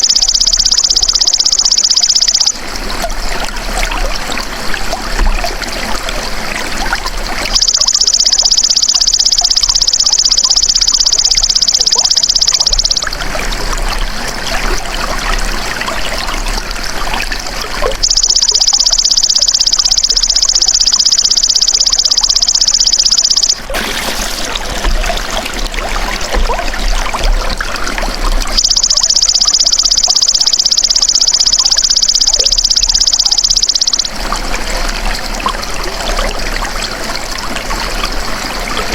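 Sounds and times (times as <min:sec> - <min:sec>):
trickling running water: 0:00.0 - 0:38.9.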